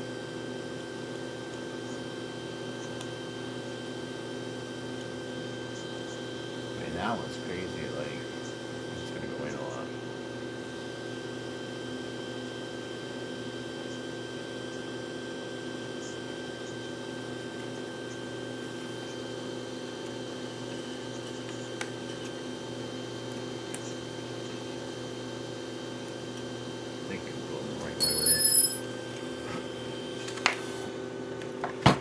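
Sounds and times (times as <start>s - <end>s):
steady machine hum: 6.4s - 10.4s.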